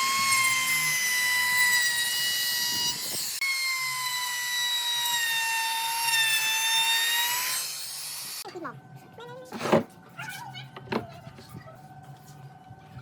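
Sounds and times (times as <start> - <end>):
power tool motor whine: 0.0 - 8.4.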